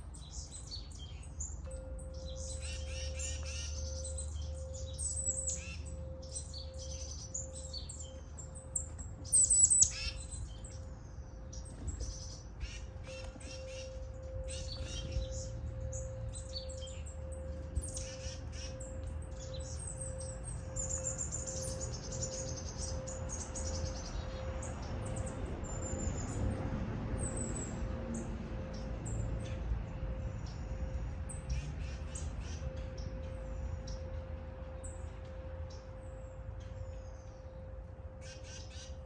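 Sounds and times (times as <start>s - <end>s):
small birds chirping: 0.0s - 26.5s
low rumble of wind: 0.0s - 39.0s.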